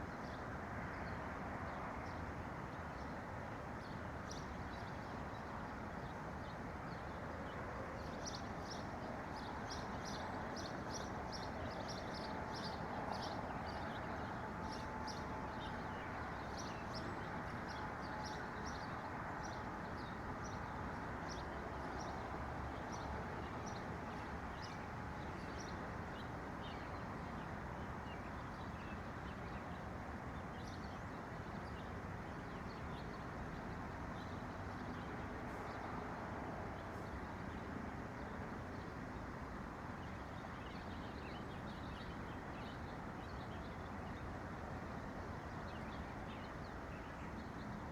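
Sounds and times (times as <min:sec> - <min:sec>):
small songbirds chirping: 0:08.0 - 0:27.1, 0:40.0 - 0:44.3, 0:45.0 - 0:47.9.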